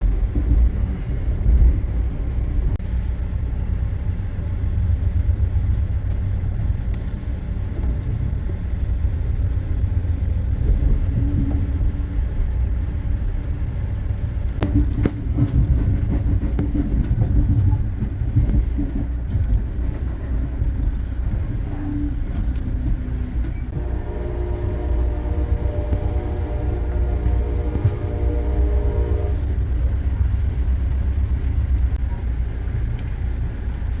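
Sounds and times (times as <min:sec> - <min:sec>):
vehicle rumbling: 0:00.0 - 0:34.0
light clicks and rattles: 0:29.8 - 0:34.0.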